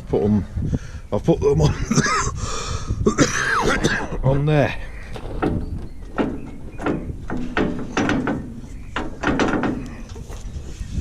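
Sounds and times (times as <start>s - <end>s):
mower parts clicking and knocking: 5.0s - 10.8s.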